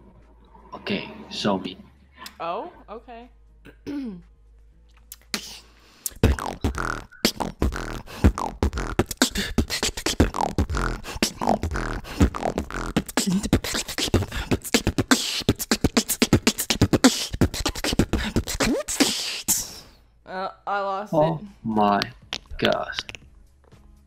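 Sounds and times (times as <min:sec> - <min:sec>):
woman beatboxing: 0:05.1 - 0:19.8.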